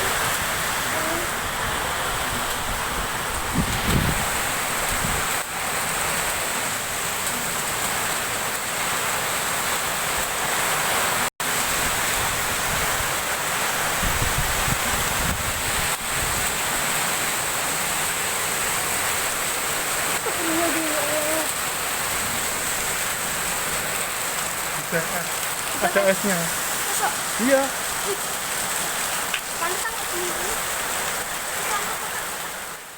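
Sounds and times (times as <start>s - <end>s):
wind buffeting microphone: 0.0s - 5.4s, 13.8s - 16.7s
heavy rain and hail: 0.0s - 32.9s.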